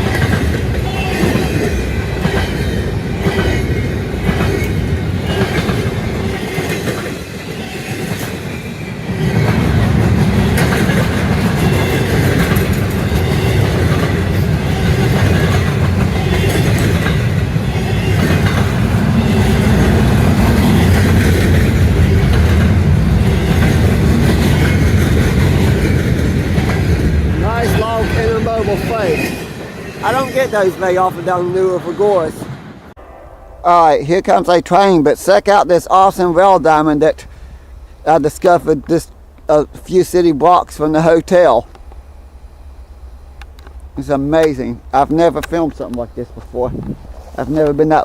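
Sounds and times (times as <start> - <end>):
wheels clacking over rail joints: 0.0 - 32.3, 43.2 - 48.0
freight train rolling past: 0.0 - 48.0.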